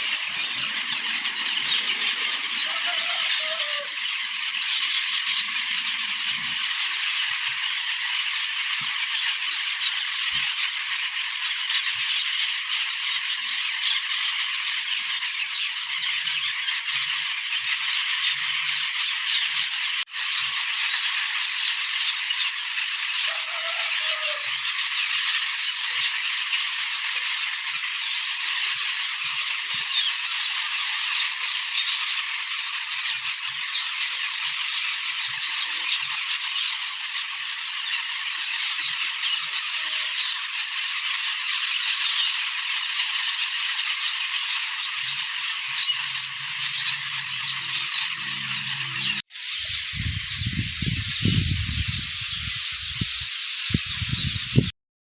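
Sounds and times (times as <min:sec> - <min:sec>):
starlings chattering: 0:00.0 - 0:54.7.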